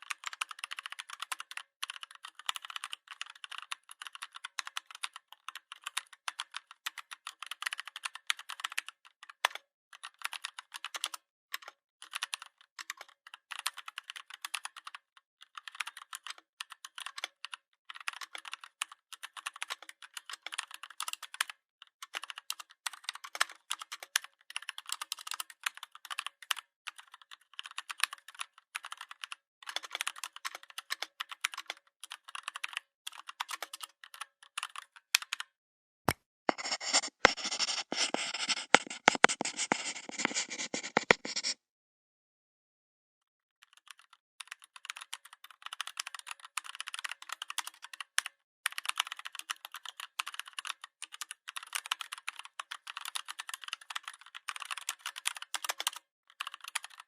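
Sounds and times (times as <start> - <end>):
keyboard typing: 0.0 - 8.8, 22.1 - 35.5, 36.5 - 41.6, 43.9 - 57.0.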